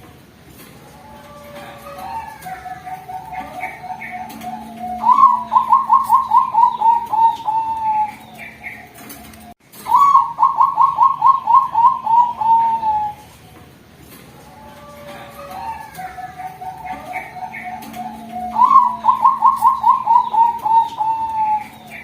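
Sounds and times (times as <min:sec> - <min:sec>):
dove cooing: 0:00.7 - 0:13.6, 0:14.2 - 0:22.0.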